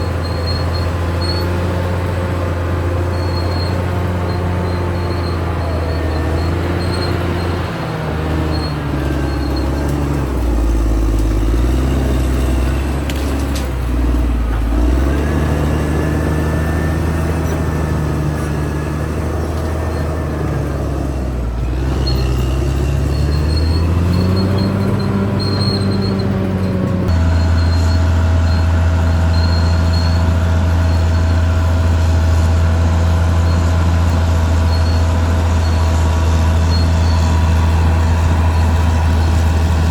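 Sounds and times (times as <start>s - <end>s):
bulldozer diesel engine working: 0.0s - 39.9s.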